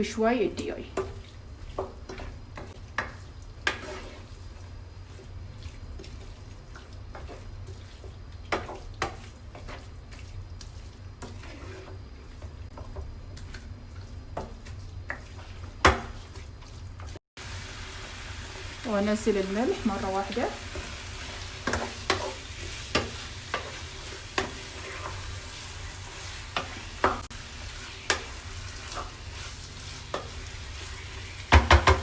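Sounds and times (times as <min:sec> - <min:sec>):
chicken sizzling in a pan: 0:00.0 - 0:32.0
utensil knocking against pan: 0:31.5 - 0:32.0.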